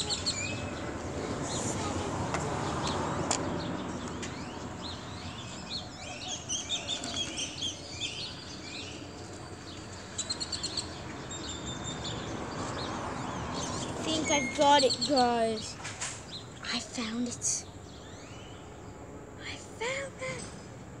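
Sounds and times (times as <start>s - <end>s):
small bird chirping: 3.7s - 15.7s.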